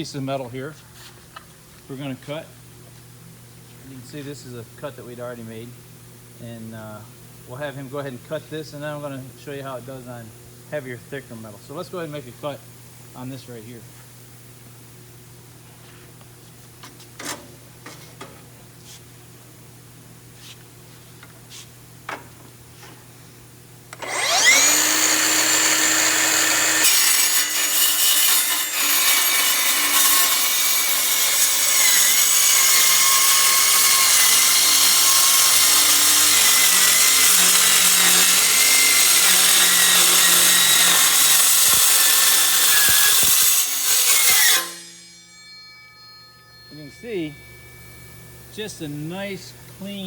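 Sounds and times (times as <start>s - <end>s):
circular saw cutting steel: 24.0s - 50.0s.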